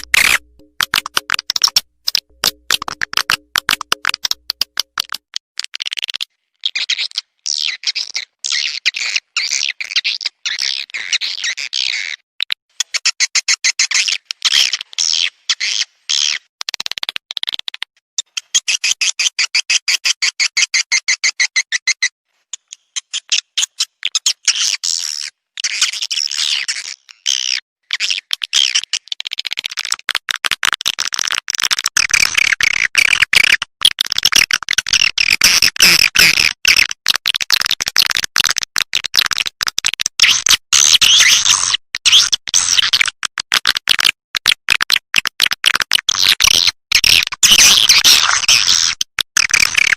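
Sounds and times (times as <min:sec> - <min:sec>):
rapid clicking pulses: 0:00.0 - 0:05.2.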